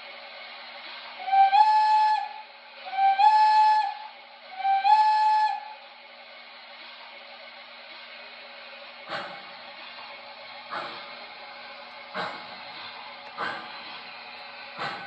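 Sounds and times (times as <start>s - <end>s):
steady hiss: 0.0s - 15.0s
electronic train whistle blasts: 1.2s - 5.8s.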